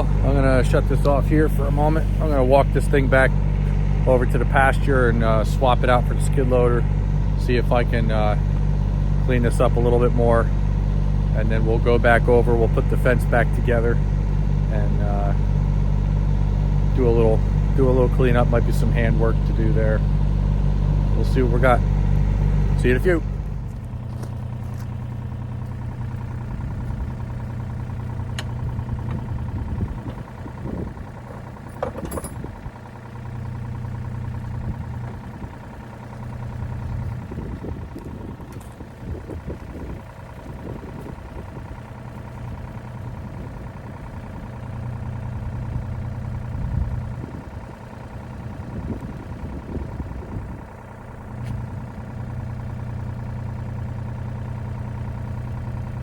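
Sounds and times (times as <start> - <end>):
heavy equipment engine running: 0.0 - 56.0
clanks and rattles: 23.3 - 43.3.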